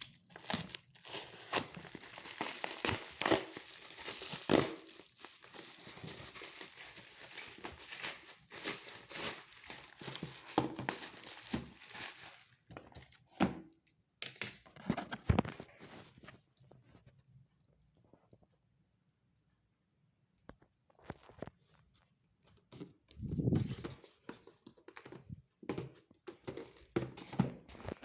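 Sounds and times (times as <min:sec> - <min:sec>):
plastic and paper crinkling: 0:00.0 - 0:13.5.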